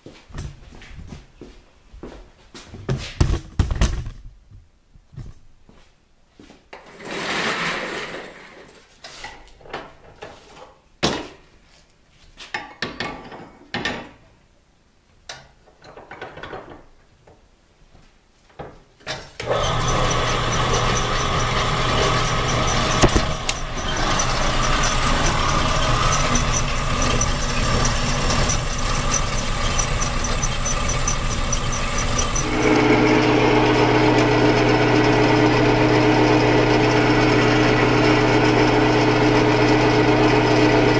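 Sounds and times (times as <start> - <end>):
power tool squealing: 19.4 - 40.9.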